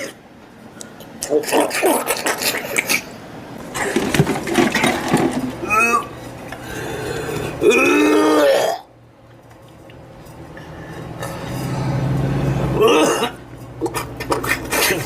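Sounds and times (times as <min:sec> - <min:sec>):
man gagging and retching: 0:07.5 - 0:08.9, 0:12.8 - 0:15.0.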